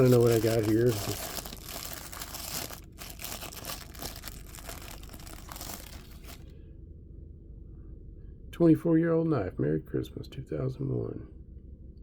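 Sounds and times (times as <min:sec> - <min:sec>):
paper crinkling and tearing: 0:00.0 - 0:06.4.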